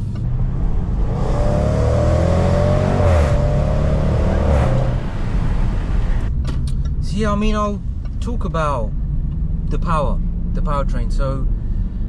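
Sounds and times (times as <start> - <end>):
car engine accelerating hard: 0.0 - 6.3.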